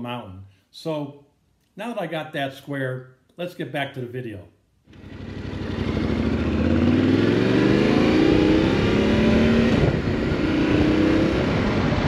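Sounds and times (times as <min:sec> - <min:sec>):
motorcycle engine accelerating: 0:04.9 - 0:12.0.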